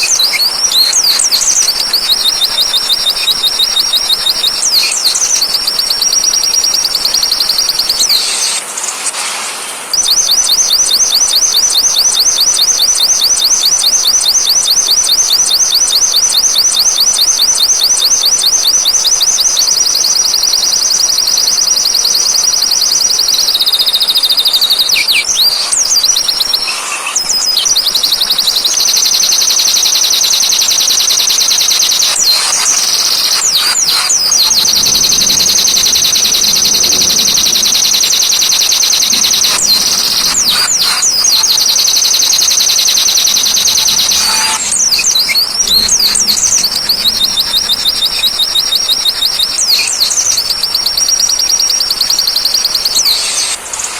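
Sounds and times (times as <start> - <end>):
bird fast high trill: 0.0 - 8.6, 9.9 - 53.9
sweeping chirps: 0.0 - 8.9, 9.9 - 53.9
rain-like hiss: 8.0 - 10.0.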